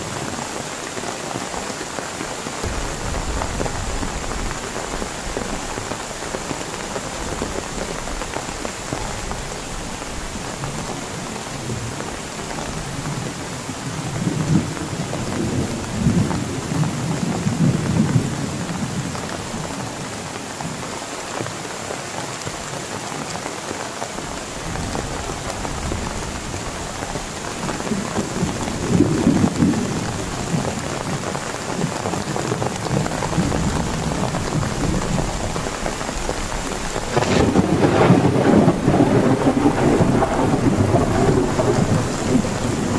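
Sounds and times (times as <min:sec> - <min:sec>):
heavy rain falling: 0:00.0 - 0:42.9
thunder rumbling: 0:02.6 - 0:10.9, 0:24.6 - 0:42.9.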